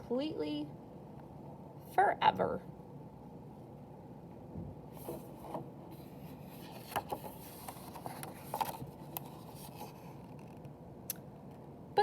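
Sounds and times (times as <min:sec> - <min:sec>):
paper pages rustling: 0:05.0 - 0:10.7.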